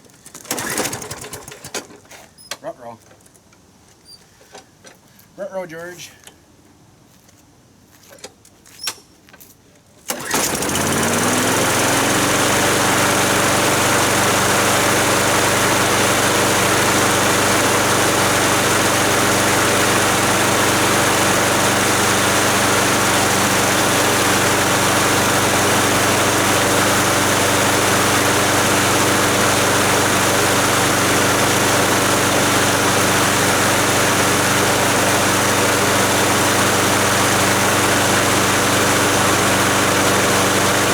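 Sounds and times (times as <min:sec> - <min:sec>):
lawn mower engine running: 0:00.4 - 0:02.0, 0:10.1 - 0:40.9.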